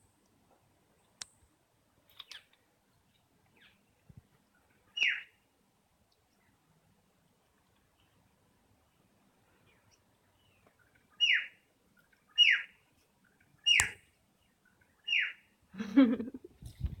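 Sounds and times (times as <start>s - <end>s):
bird chirping: 2.2s - 5.4s, 9.5s - 15.6s
sharp click: 13.7s - 14.0s.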